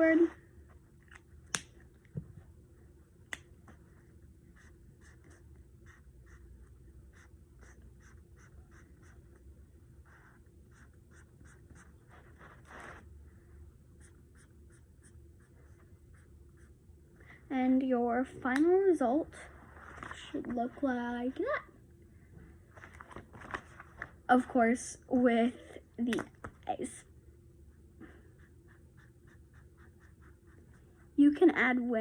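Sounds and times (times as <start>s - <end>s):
colouring tool scratching on paper: 7.1s - 9.2s, 28.3s - 31.1s.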